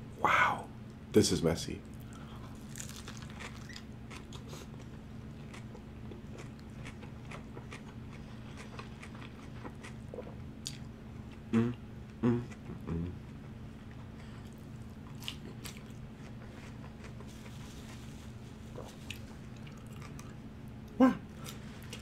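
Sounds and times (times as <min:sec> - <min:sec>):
crunchy wet chewing: 0:01.9 - 0:11.4, 0:13.3 - 0:22.0
short low voice sounds: 0:11.5 - 0:13.2.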